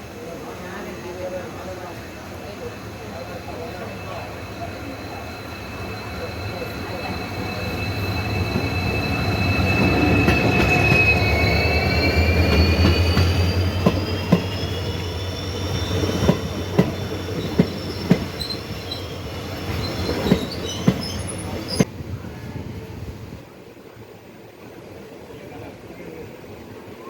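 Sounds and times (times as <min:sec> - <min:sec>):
train rumble: 0:00.0 - 0:23.5
train wheels squealing: 0:02.5 - 0:21.9.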